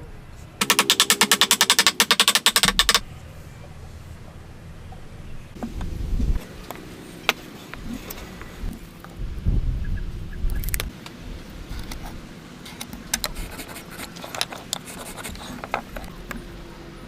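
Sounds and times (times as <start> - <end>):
sharp clicks and taps: 0.6 - 3.0
low rumble: 3.0 - 6.7.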